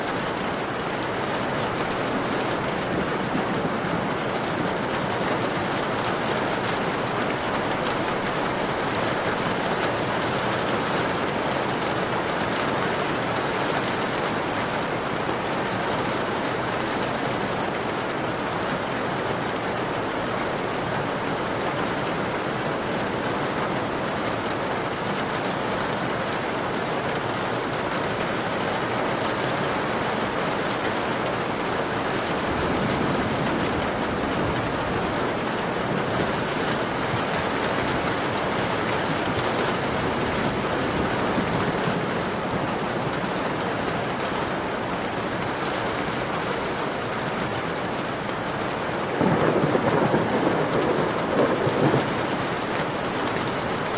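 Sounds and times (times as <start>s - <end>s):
rain hitting a window pane: 0.0s - 53.9s
low rumble of thunder: 49.1s - 52.6s.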